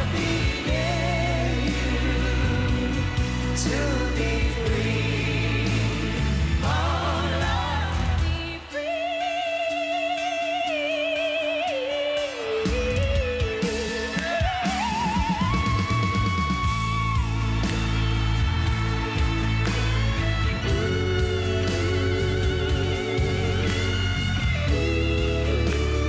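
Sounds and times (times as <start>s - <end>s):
person singing: 0.0s - 13.0s, 20.5s - 26.0s
live rock band music: 0.0s - 26.0s.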